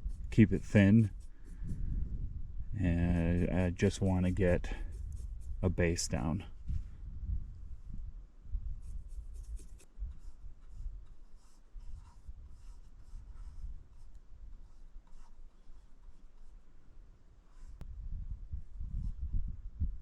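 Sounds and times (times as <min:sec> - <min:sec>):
paintbrush scrubbing on canvas: 0:00.0 - 0:02.0, 0:02.8 - 0:06.3, 0:08.8 - 0:16.6.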